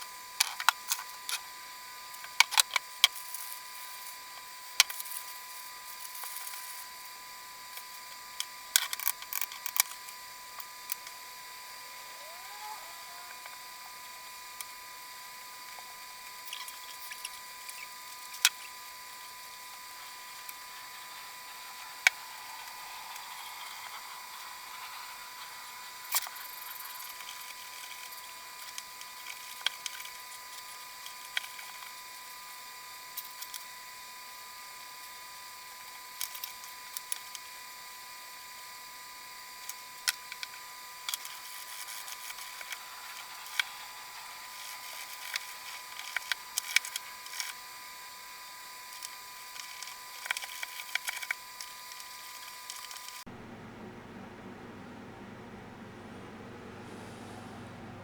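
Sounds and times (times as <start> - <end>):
faint high hum: 53.2 - 58.0.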